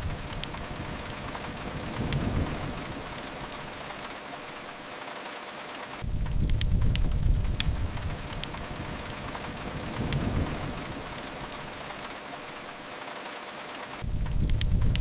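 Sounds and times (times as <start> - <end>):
fireplace crackles: 0.0 - 15.0
rain hissing: 0.0 - 15.0
low rumble: 6.0 - 11.9.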